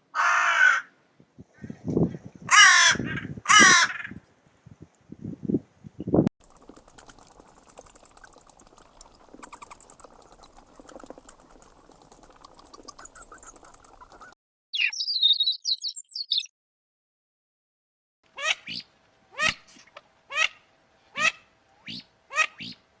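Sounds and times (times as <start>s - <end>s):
small animals trilling: 6.4s - 14.4s
bird chirps: 6.4s - 16.5s.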